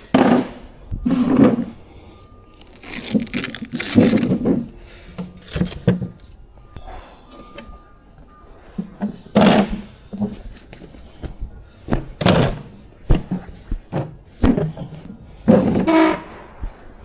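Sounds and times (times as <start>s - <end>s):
equipment thudding and knocking: 11.9s - 15.9s.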